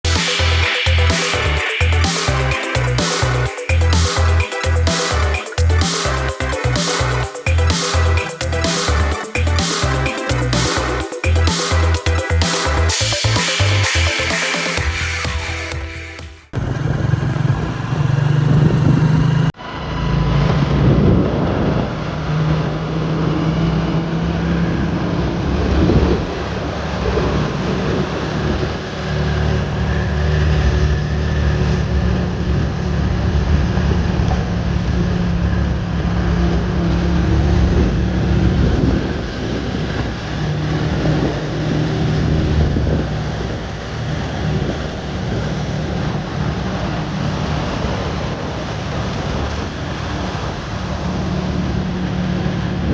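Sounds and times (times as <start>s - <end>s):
vehicle engine running: 16.6s - 19.5s
wind noise on microphone: 20.5s - 24.1s, 37.5s - 47.0s.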